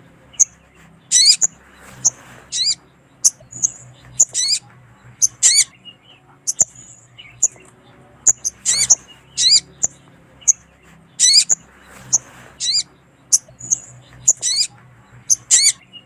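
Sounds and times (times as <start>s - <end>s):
bird calling with sharp chips: 0.3s - 4.6s, 5.2s - 14.7s, 15.3s - 16.0s
bird's wavering descending trills: 1.1s - 4.6s, 11.2s - 14.7s.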